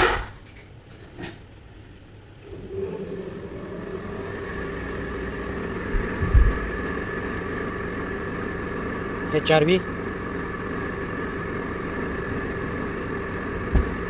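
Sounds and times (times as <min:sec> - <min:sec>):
car engine idling: 0:02.4 - 0:14.0
low thumps: 0:13.3 - 0:14.0.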